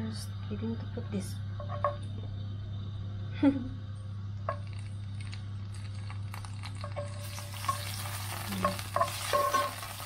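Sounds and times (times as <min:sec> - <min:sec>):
steady low hum: 0:00.0 - 0:10.0
herbs sizzling in hot oil: 0:04.4 - 0:10.0
metal tongs clinking on pan: 0:06.9 - 0:10.0.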